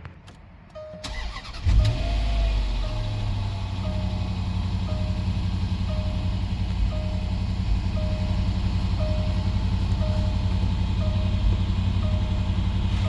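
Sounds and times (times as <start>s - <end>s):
car engine idling: 1.0s - 13.0s
electronic chime beeping: 2.8s - 13.0s.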